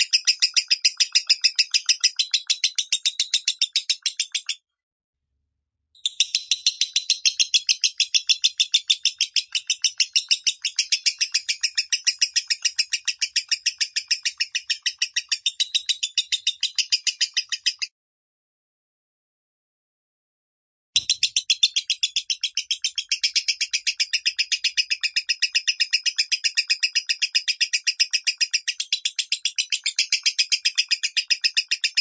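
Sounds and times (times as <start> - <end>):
lovebird chirping: 0.0 - 4.6, 6.0 - 17.9, 21.0 - 32.0.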